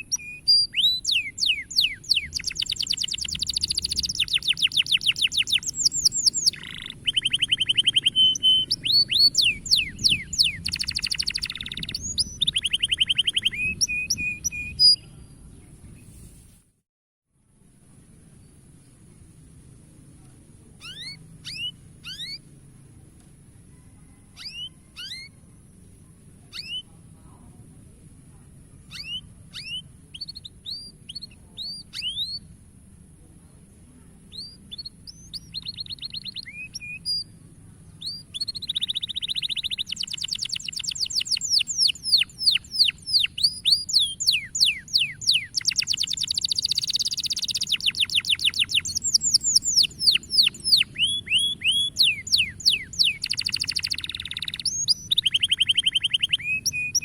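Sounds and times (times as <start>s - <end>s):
canary singing: 0.0s - 15.1s, 20.8s - 22.5s, 24.0s - 25.8s, 26.5s - 27.0s, 28.9s - 32.6s, 34.3s - 37.4s, 38.0s - 57.0s.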